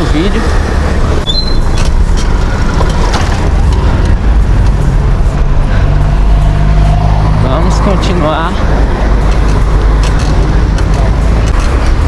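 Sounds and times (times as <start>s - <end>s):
traffic engine hum: 0.0s - 12.0s
wind rumble on microphone: 0.0s - 12.0s.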